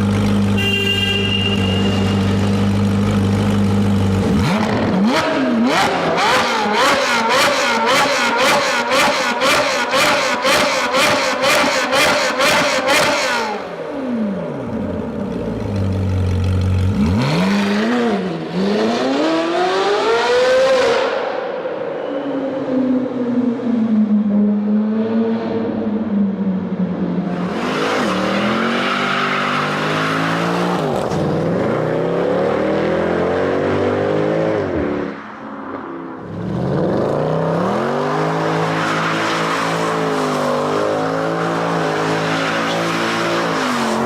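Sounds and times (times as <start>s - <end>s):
sports car engine revving: 2.4s - 21.1s.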